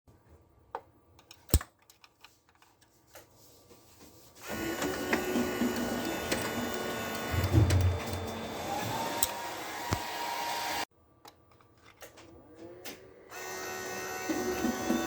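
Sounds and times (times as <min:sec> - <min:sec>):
copier motor whining: 0:04.4 - 0:10.9, 0:12.7 - 0:15.0.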